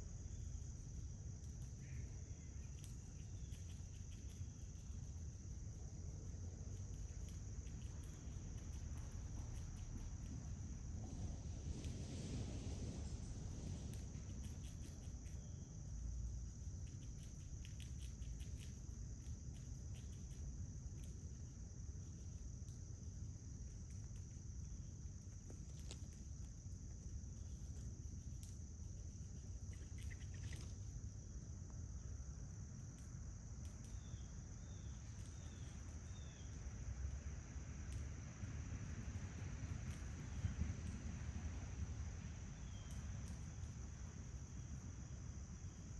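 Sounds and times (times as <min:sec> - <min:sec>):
insect trill: 0:00.0 - 0:45.9
low outdoor rumble: 0:00.0 - 0:45.9
faint clicks: 0:37.9 - 0:38.1.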